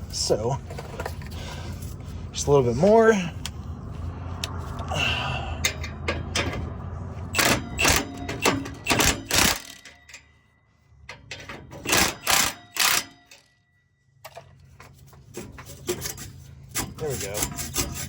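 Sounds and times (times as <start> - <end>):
metal exhaust pipe clanking: 5.5 - 14.6.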